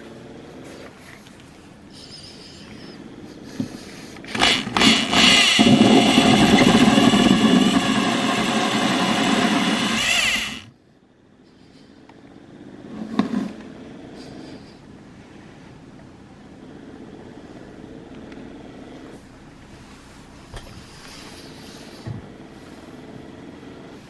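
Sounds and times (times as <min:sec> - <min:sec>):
power tool motor whining: 0:04.2 - 0:10.7.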